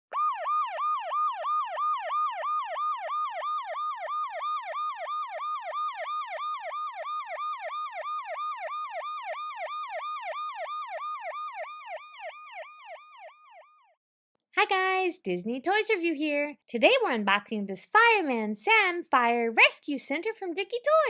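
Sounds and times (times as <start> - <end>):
electronic siren yelping: 0.1 - 14.0.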